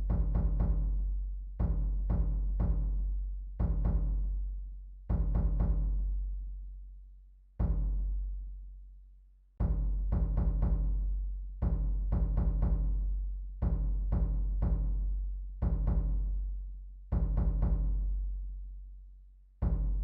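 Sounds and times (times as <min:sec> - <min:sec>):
deep drums booming: 0:00.0 - 0:00.9, 0:01.6 - 0:03.0.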